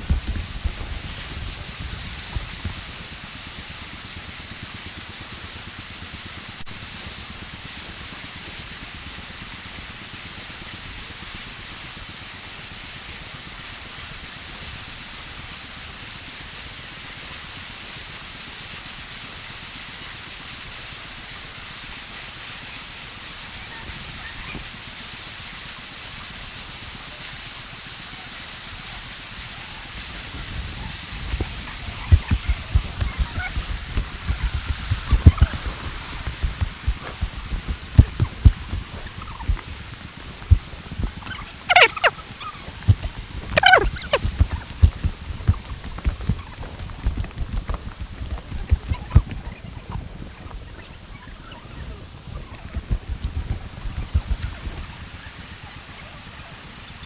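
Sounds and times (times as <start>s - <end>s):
falling water rushing: 0.0s - 56.2s.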